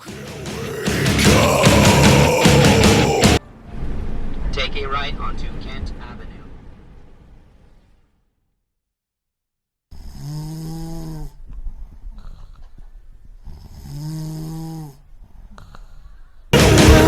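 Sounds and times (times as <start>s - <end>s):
person snoring: 0.0s - 3.4s, 10.0s - 11.4s, 13.5s - 15.0s.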